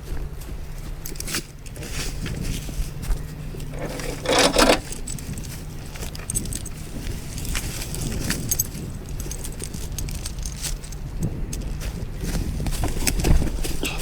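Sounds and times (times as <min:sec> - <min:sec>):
chain scraping: 0:03.6 - 0:11.0
steel chain clinking and rattling: 0:03.7 - 0:11.7.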